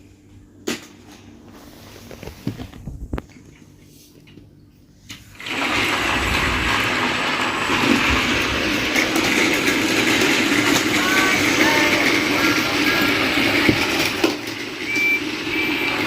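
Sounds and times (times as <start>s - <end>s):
toy train motor whirring: 6.8s - 16.0s.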